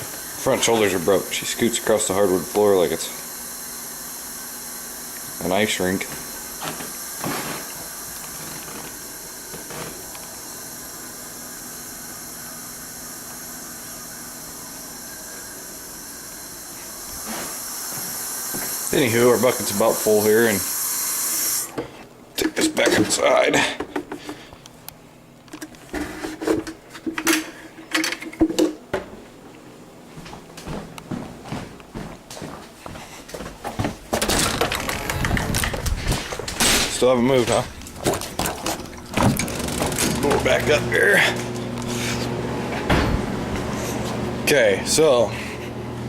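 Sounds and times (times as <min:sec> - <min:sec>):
tap water running into bucket: 0:00.0 - 0:21.9, 0:37.5 - 0:41.4
steady hum: 0:00.0 - 0:46.0.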